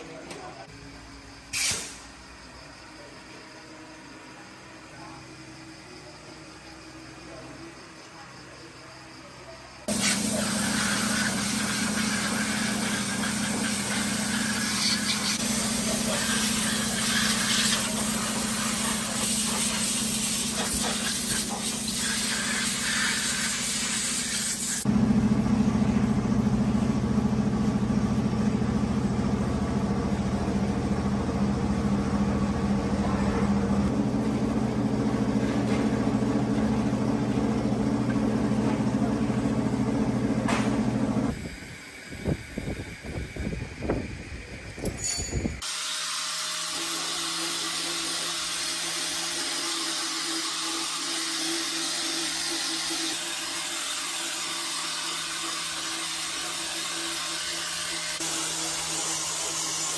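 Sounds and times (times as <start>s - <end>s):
hiss: 1.5s - 2.4s, 9.8s - 24.9s, 41.3s - 44.8s
truck engine running: 24.9s - 41.4s.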